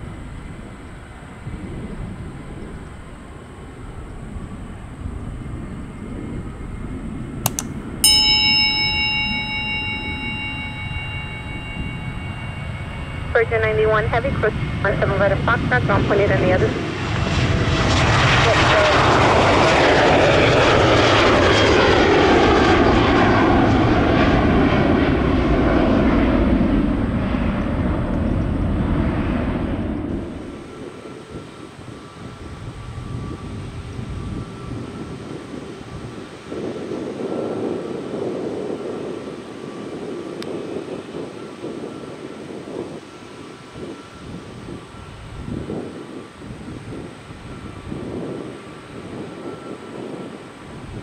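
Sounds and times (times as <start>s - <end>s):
distant jet aircraft rumble: 0.0s - 8.1s, 8.7s - 51.0s
quick clicks: 7.5s - 7.8s
metallic chime ringing: 7.5s - 14.8s.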